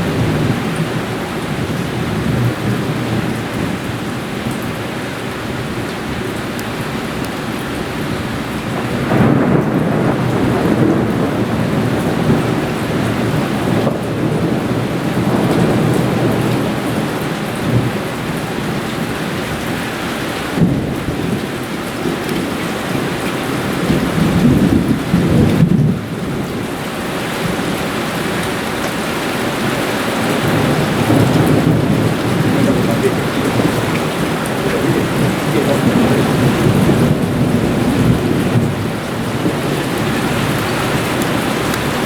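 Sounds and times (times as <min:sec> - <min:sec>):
heavy rain hissing: 0:00.0 - 0:42.0
rolling thunder: 0:08.7 - 0:19.8, 0:20.5 - 0:26.8, 0:29.1 - 0:42.0.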